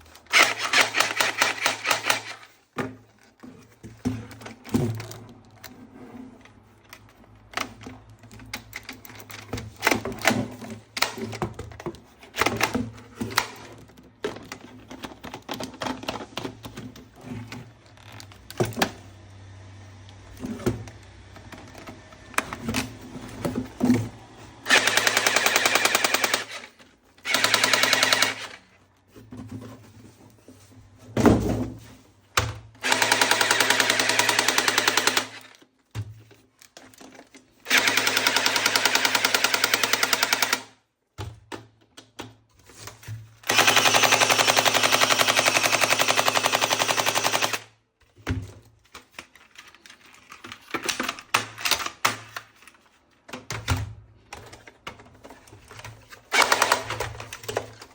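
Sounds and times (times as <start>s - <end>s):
toy gun motor whirring: 0.2s - 2.5s, 24.6s - 28.6s, 32.8s - 35.6s, 37.6s - 40.7s, 43.4s - 47.7s, 56.3s - 57.3s.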